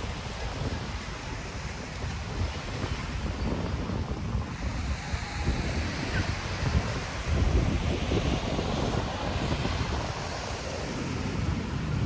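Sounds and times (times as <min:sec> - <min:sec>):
waves washing onto beach: 0:00.0 - 0:12.0
wind buffeting microphone: 0:00.0 - 0:12.0.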